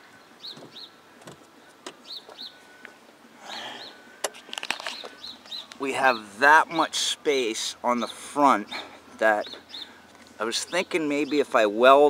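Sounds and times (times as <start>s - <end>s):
bird chirping: 0.0s - 2.9s, 3.5s - 12.0s.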